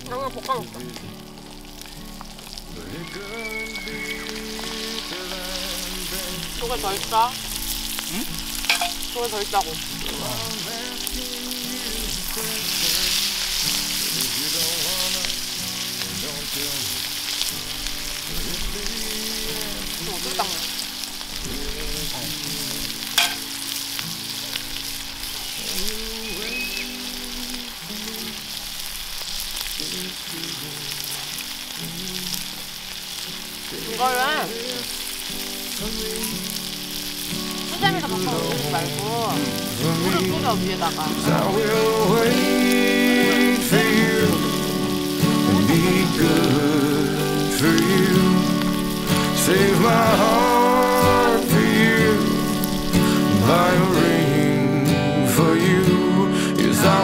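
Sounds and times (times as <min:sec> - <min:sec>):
soft instrumental music: 0:00.0 - 0:28.8, 0:29.7 - 0:57.0
food frying and sizzling: 0:00.0 - 0:57.0
sharp pops: 0:08.6 - 0:09.2, 0:23.1 - 0:23.7.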